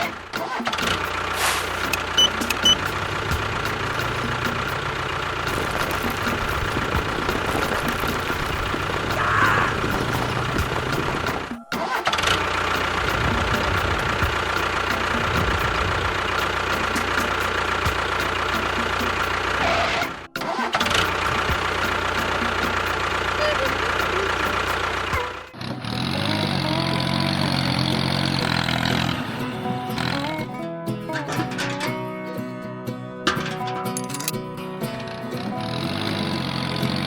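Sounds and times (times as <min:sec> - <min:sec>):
motor whining and humming: 0:01.2 - 0:20.3, 0:20.9 - 0:30.2.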